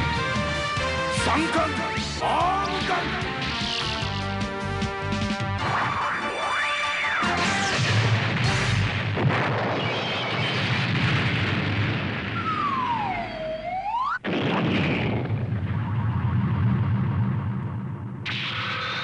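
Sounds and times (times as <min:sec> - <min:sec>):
cartoon explosion rumble: 0:07.3 - 0:19.0
whistling tone: 0:12.4 - 0:14.1.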